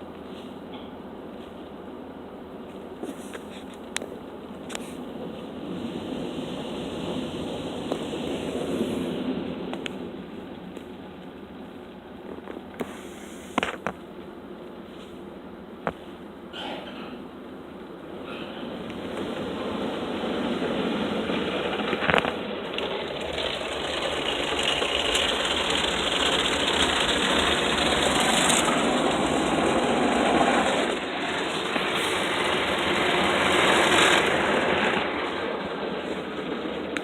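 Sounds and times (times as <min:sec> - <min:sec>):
automatic car wash running: 0:04.2 - 0:12.2, 0:18.0 - 0:37.0.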